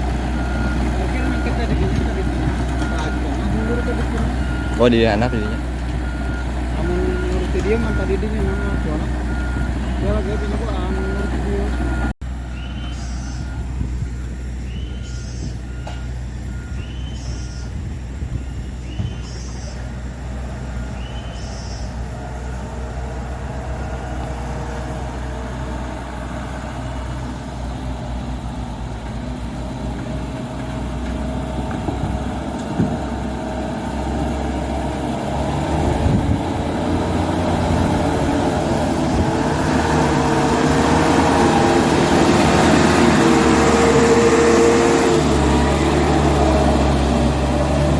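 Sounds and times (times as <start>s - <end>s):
reversing beeper: 0.0s - 25.6s
diesel engine running: 0.0s - 47.9s.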